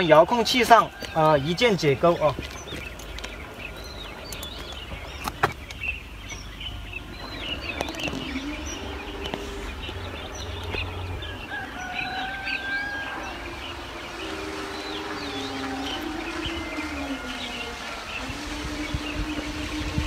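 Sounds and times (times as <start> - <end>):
birds chirping and calling: 0.0 - 20.0.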